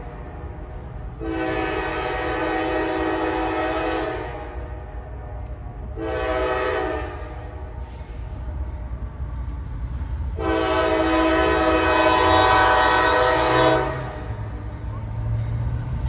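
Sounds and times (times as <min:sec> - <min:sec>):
train low rumble: 0:00.0 - 0:16.0
locomotive air horn blasts: 0:01.2 - 0:04.9, 0:05.9 - 0:07.4, 0:10.4 - 0:14.3.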